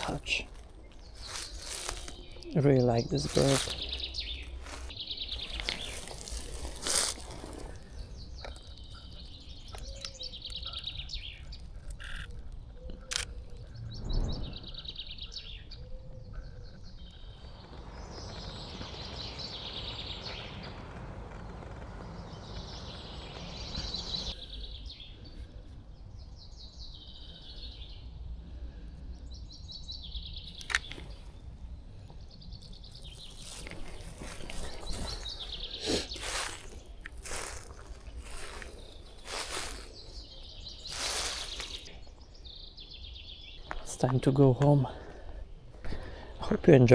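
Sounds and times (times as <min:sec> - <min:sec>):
songbirds singing and chirping: 0:00.0 - 0:46.9
sharp clicks: 0:11.3 - 0:13.6, 0:30.5 - 0:31.2.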